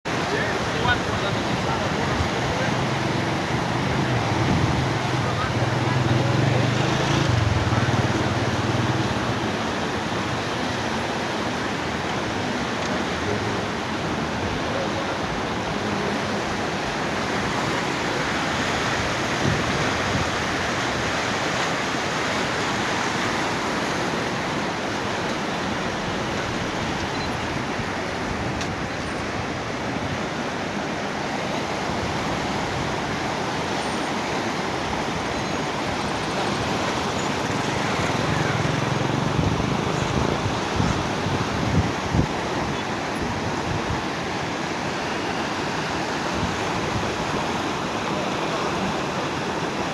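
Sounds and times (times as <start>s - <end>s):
flooded river rushing: 0.1s - 49.9s.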